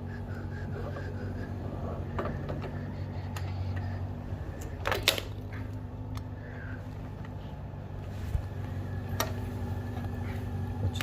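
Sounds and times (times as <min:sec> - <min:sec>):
steady low hum: 0:00.0 - 0:11.0
metal parts clicking: 0:04.6 - 0:05.5.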